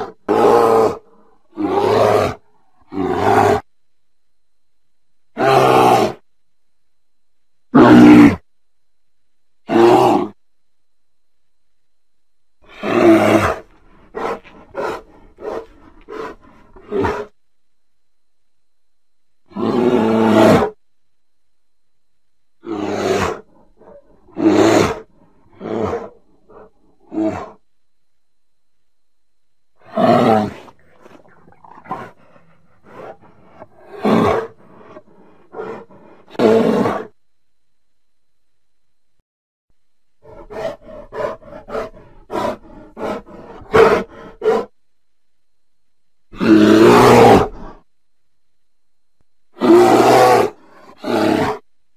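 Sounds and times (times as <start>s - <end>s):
bear growling: 0.0s - 3.7s, 7.7s - 8.5s, 9.7s - 10.4s, 12.6s - 17.4s, 19.4s - 20.8s, 22.6s - 27.6s, 29.8s - 37.2s, 40.2s - 44.8s, 46.3s - 47.9s, 49.5s - 51.6s
bears calling: 12.6s - 17.4s.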